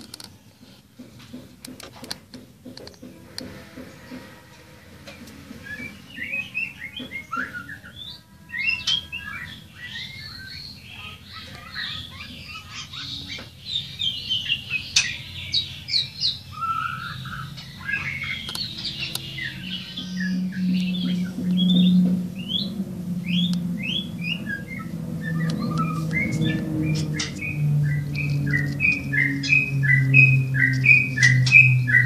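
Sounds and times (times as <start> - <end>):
birds chirping: 0.0 - 32.0
low steady hum: 14.9 - 32.0.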